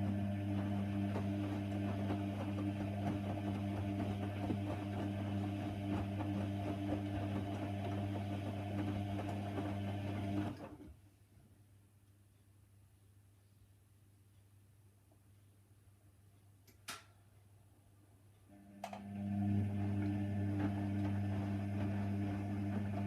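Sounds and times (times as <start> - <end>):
washer dryer humming and rattling: 0.0 - 10.9, 18.6 - 23.0.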